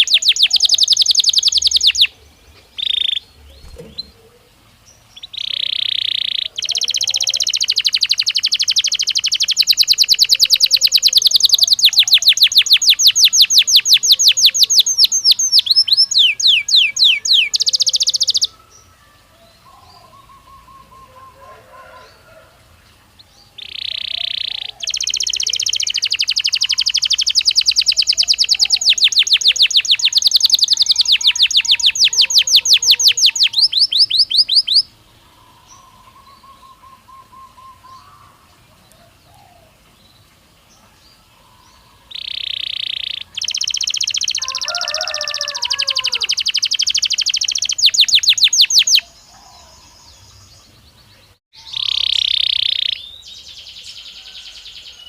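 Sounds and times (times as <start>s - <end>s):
canary singing rapid trills: 0.0s - 4.2s, 5.0s - 18.6s, 23.1s - 38.3s, 41.7s - 50.6s, 51.3s - 53.2s.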